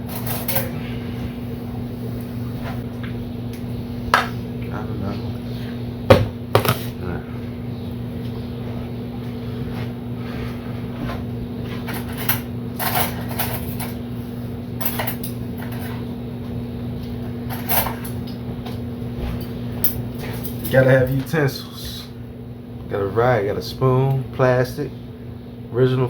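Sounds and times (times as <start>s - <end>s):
steady hum: 0.0s - 26.0s
kitchenware knocks and clacks: 6.1s - 6.9s.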